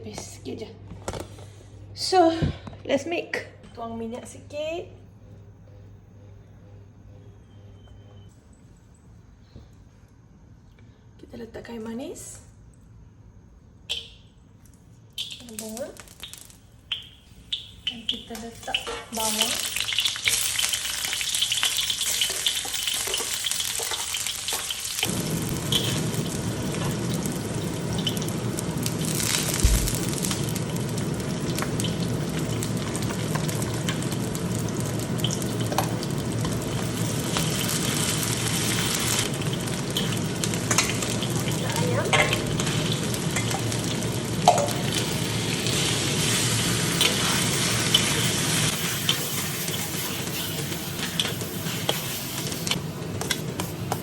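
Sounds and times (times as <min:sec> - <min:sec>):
onions sizzling in oil: 0:15.2 - 0:54.0.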